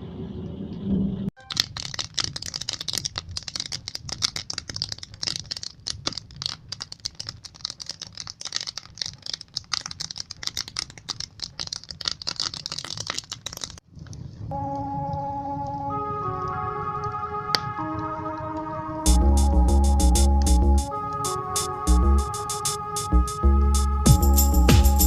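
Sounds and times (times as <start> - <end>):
wood fire crackling: 1.6 - 21.2.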